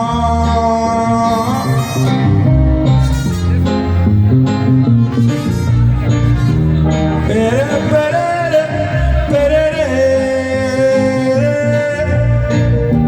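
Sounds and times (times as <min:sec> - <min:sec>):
live band music: 0:00.0 - 0:13.0.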